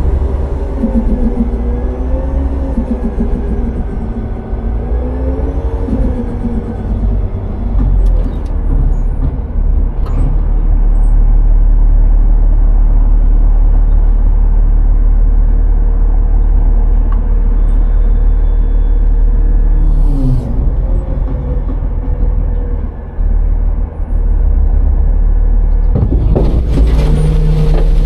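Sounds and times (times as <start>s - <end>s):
garbage truck engine drone: 0.0s - 28.0s
hydraulic whine: 17.4s - 22.4s.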